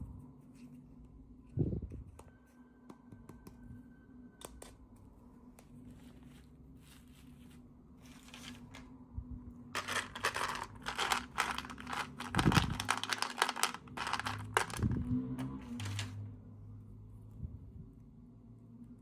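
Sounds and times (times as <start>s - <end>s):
packaging tearing and crinkling: 9.8s - 16.1s.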